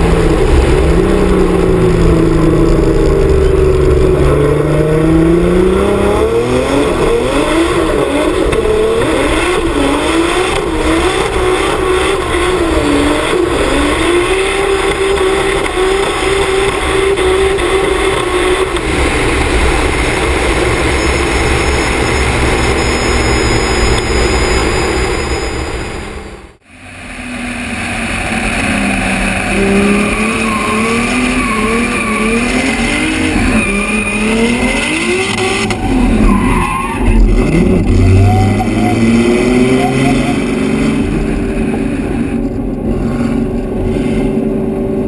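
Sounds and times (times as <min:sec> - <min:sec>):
race car engine revving: 0:00.0 - 0:45.0
wind and road rush: 0:00.0 - 0:45.0.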